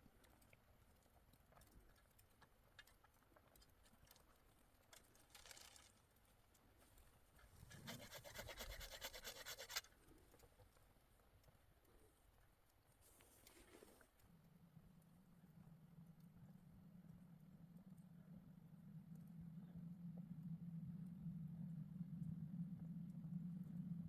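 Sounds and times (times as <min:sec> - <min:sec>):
rapid scraping strokes: 0:07.5 - 0:10.4.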